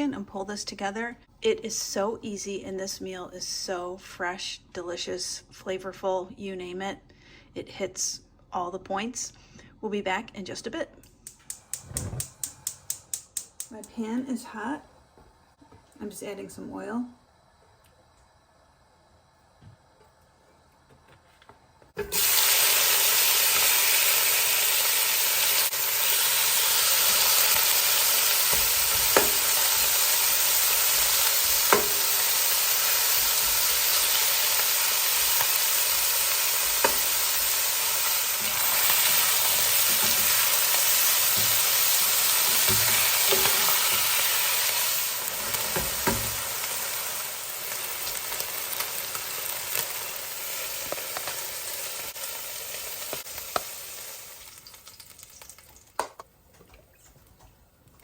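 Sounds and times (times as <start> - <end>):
utensil clicks against pan: 11.2 - 13.7
chicken sizzling in hot oil: 22.0 - 56.0.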